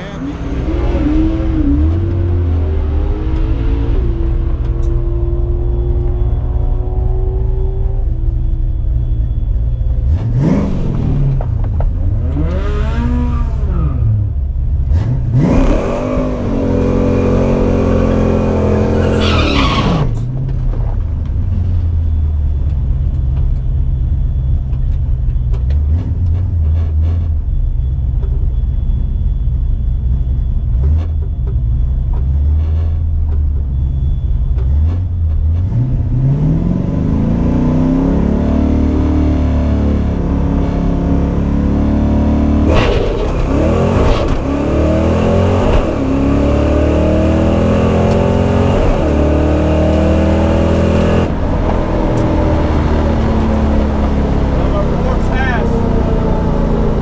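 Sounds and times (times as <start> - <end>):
car engine revving: 0.0 - 20.7, 34.5 - 57.0.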